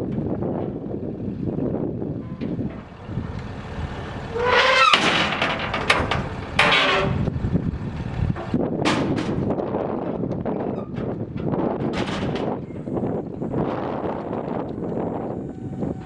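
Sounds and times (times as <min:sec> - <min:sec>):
truck engine rumbling: 0:00.0 - 0:16.0
loud squeal: 0:04.3 - 0:05.9.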